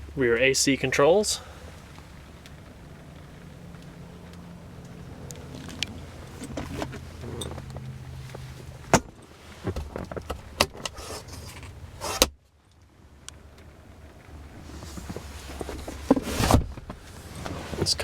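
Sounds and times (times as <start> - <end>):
car door shutting: 5.6 - 12.4, 14.8 - 18.0.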